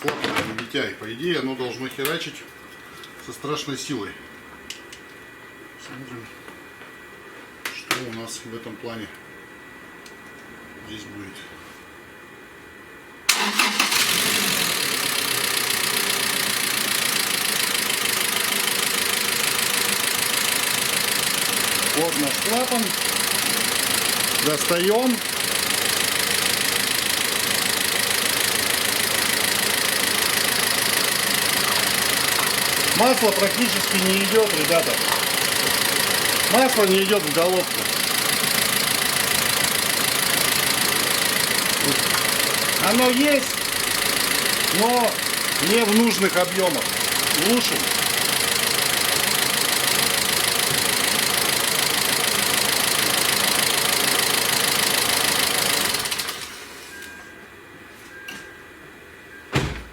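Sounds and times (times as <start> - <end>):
petrol engine idling: 13.3 - 57.0.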